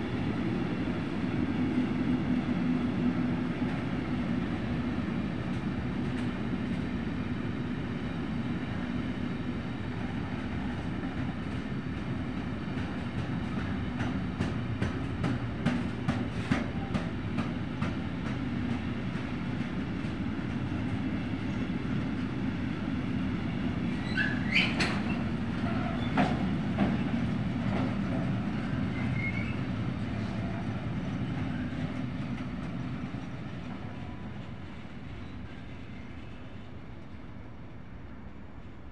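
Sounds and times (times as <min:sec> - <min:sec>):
freight train rumble: 0:00.0 - 0:38.9
wheel squeals: 0:24.0 - 0:26.4, 0:28.9 - 0:29.7.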